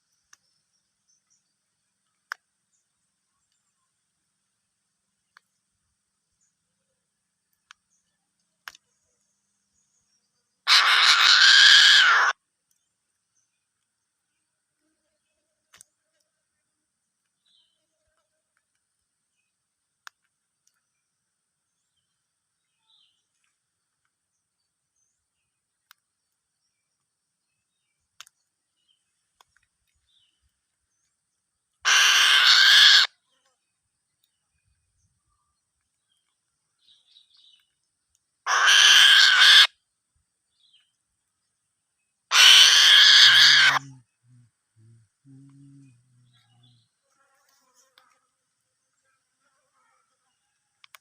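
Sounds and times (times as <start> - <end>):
faint ticks: 0.0 - 3.9, 5.2 - 5.8, 7.4 - 9.3, 12.6 - 16.4, 17.2 - 21.1, 25.7 - 31.8, 33.3 - 38.4, 43.8 - 49.2, 50.6 - 51.0
faint clicks: 0.1 - 0.5, 7.5 - 9.0, 15.7 - 16.3, 25.8 - 27.1, 28.1 - 28.5, 29.3 - 31.8, 37.3 - 38.3, 47.4 - 48.2, 50.8 - 51.0
eagle hissing call: 10.7 - 12.4, 31.8 - 33.2, 38.5 - 39.8, 42.3 - 44.0.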